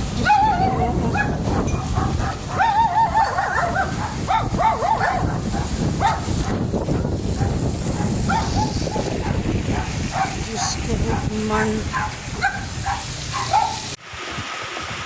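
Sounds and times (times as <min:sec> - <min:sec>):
high-pitched yelping cries: 0:00.2 - 0:06.2, 0:11.0 - 0:13.9.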